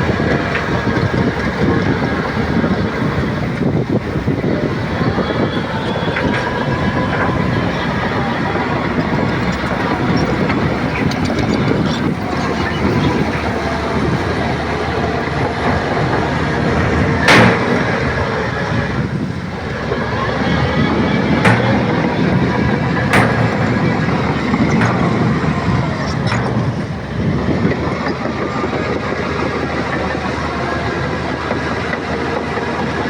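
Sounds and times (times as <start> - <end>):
bulldozer engine running: 0.0 - 33.0
track clatter: 0.0 - 33.0
sharp metallic clanks: 6.1 - 28.4.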